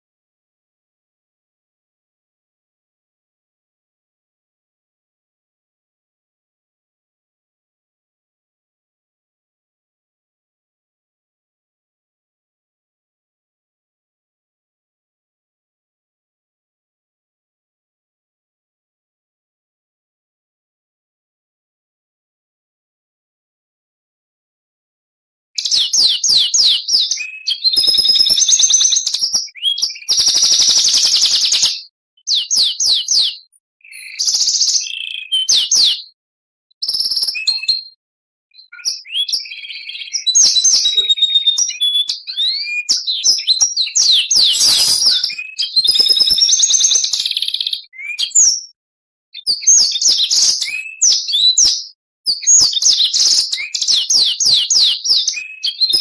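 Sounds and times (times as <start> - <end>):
bird singing whistles and trills: 25.6 - 36.2, 36.8 - 48.8, 49.4 - 56.0.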